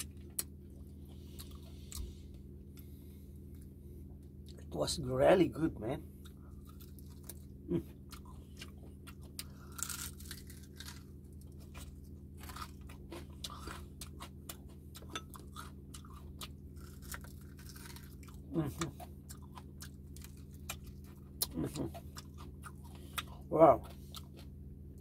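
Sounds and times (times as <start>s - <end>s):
chewing crispy skin crunching: 0.0s - 4.8s, 6.1s - 25.0s.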